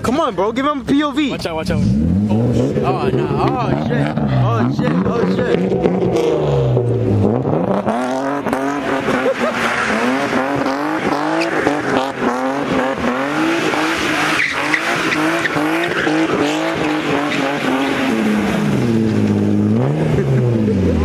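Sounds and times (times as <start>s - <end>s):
car engine revving: 0.0s - 21.0s
tyre squeal: 8.8s - 12.2s.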